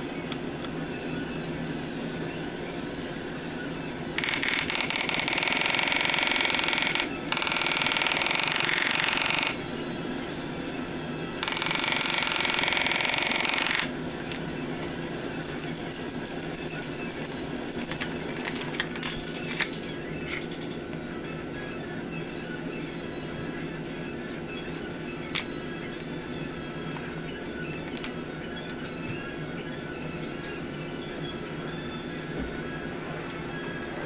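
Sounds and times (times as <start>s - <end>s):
steady background hum: 0.0s - 34.0s
power tool buzzing rattle: 4.2s - 9.6s, 11.4s - 13.9s.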